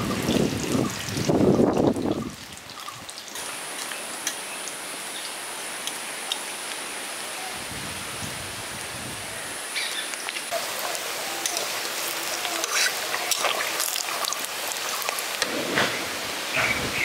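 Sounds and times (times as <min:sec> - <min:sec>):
deep-frying sizzle with pops: 0:00.0 - 0:06.4, 0:10.1 - 0:17.0.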